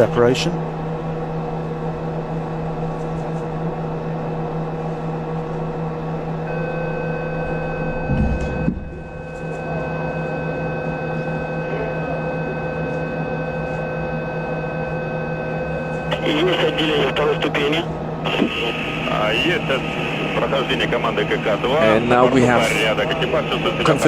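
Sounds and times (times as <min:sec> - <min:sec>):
electrical hum and hiss: 0:15.9 - 0:24.0.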